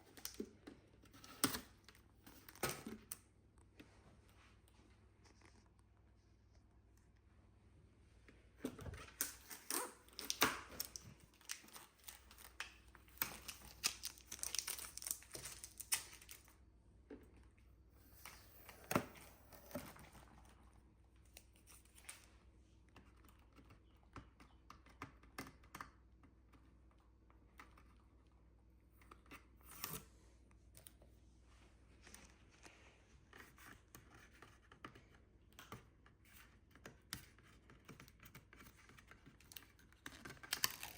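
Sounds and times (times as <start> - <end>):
plastic wrapping crinkling: 9.2 - 16.6, 39.6 - 40.9.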